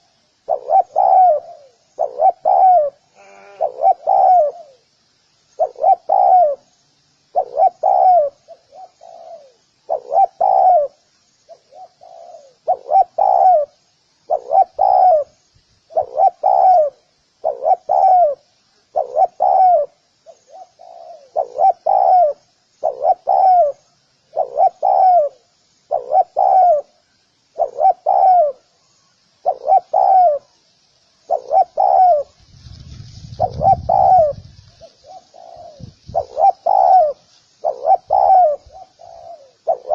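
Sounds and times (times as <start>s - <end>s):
dove cooing: 0.0s - 4.8s, 5.6s - 6.7s, 7.3s - 30.6s, 31.2s - 39.9s
faint high bird chirping: 0.0s - 39.9s
wind rumble on microphone: 32.3s - 34.9s, 35.6s - 36.4s.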